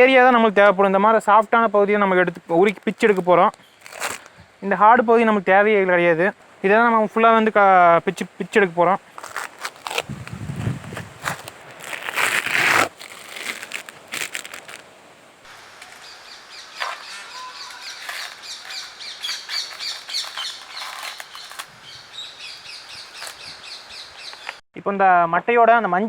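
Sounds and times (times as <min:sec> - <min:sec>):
fibre crackling: 0:02.3 - 0:04.3, 0:08.5 - 0:23.5
coconut husk fibre tearing: 0:02.6 - 0:04.3, 0:09.1 - 0:14.9, 0:16.8 - 0:21.8, 0:23.2 - 0:23.4
birds chirping: 0:15.5 - 0:24.6.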